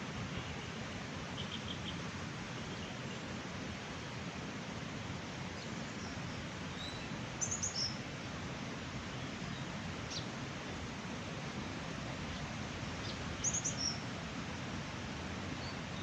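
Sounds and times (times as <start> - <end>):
small birds chirping: 6.8 - 8.0, 13.0 - 14.0.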